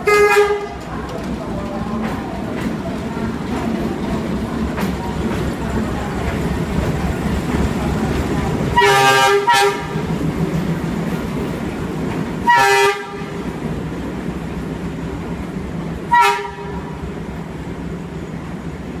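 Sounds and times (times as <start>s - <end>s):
locomotive horn toots: 0.0s - 0.8s, 8.8s - 10.1s, 12.4s - 13.4s, 16.1s - 16.8s.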